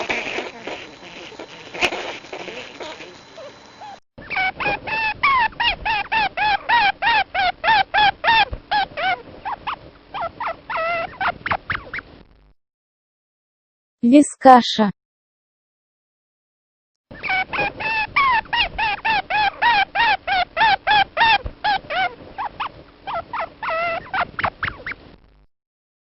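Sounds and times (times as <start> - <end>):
rustling: 0.0 - 4.0
viscacha calling: 0.0 - 12.1, 17.1 - 25.0.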